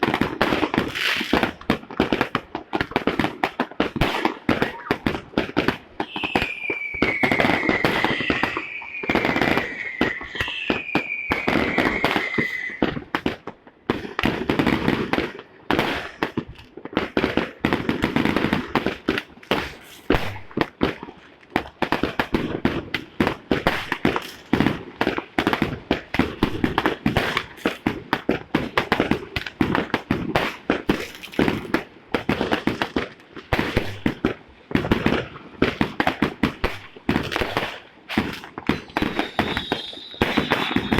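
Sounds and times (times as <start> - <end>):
fireworks and firecrackers banging: 0.0 - 40.9
high whistles sliding downward: 6.0 - 13.0, 38.9 - 40.9.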